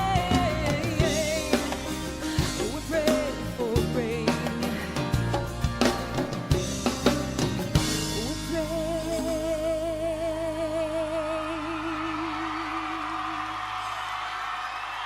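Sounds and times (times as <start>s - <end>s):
drum hits: 0.0s - 8.5s
pop band playing live: 0.0s - 15.0s.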